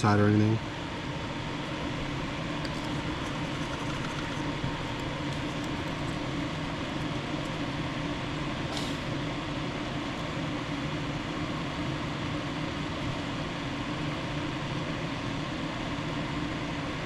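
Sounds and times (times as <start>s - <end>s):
short hiss: 8.7s - 9.1s.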